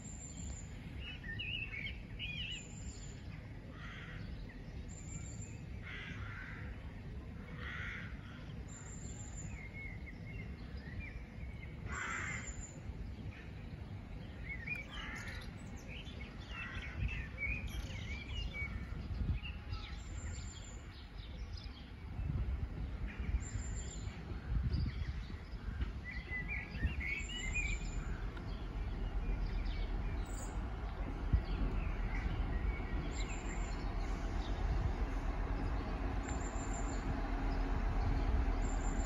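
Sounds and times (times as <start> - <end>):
birds chirping: 0.0 - 39.0
diesel train rumble: 11.6 - 39.0.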